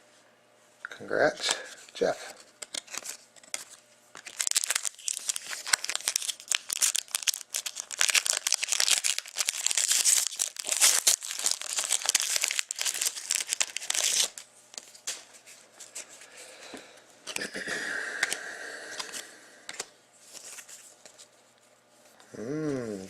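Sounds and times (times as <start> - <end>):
wrapper tearing and crinkling: 2.3 - 15.0.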